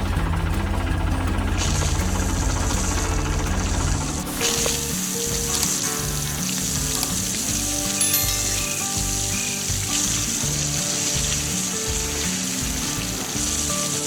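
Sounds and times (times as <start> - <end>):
music with held notes: 0.0 - 14.0
steady hiss: 1.4 - 14.0.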